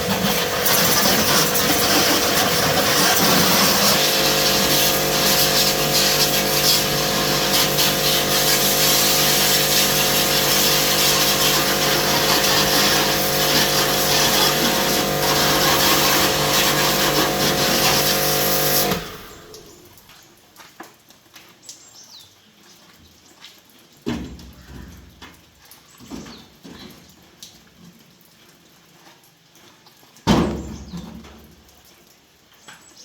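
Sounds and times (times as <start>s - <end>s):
power tool running: 0.0s - 19.7s.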